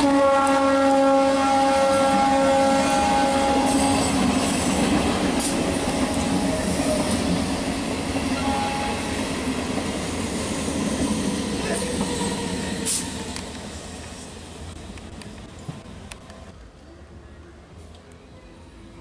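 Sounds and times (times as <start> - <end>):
train horn blast: 0.0 - 4.5
train running on rails: 0.0 - 19.0.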